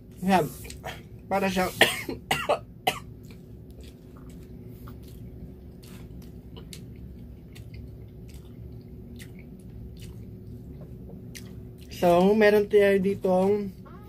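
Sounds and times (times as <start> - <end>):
low room hum: 0.0 - 14.0
person chewing food: 3.0 - 12.3.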